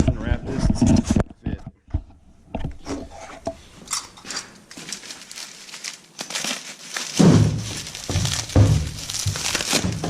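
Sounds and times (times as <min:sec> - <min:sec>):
plastic packaging crinkling and tearing: 0:04.3 - 0:10.0.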